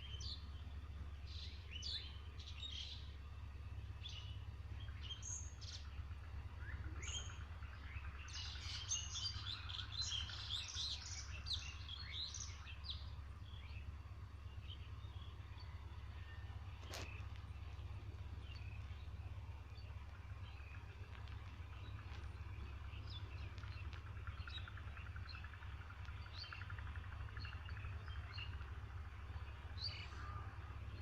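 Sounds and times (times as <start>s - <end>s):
birds chirping: 0.0s - 31.0s
steady low hum: 0.0s - 31.0s.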